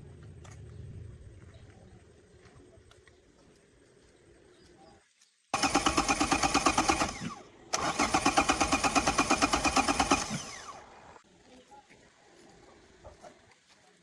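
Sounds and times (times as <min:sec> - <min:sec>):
car engine cranking: 0:05.6 - 0:11.1.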